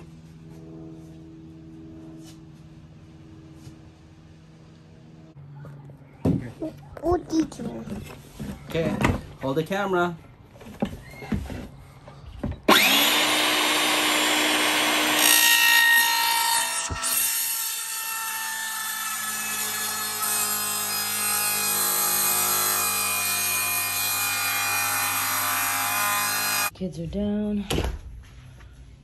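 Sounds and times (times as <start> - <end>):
power tool cutting wood: 12.7 - 26.7.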